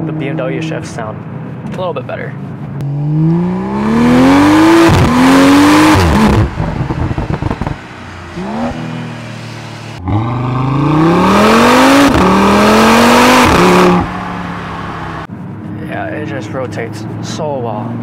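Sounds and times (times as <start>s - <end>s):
car engine revving through gears: 2.8s - 15.3s
exhaust crackle: 2.8s - 15.3s.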